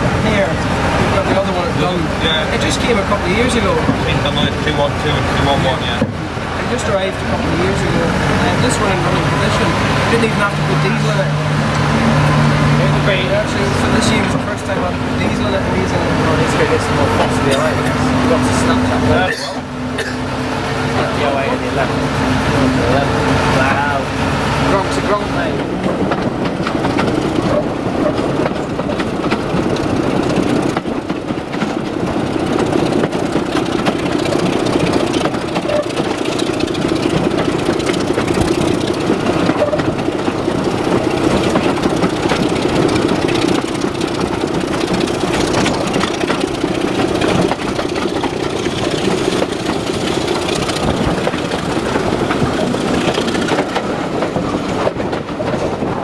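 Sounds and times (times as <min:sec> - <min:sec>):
diesel locomotive engine running: 0:00.0 - 0:56.0
train moving on rails: 0:00.0 - 0:56.0.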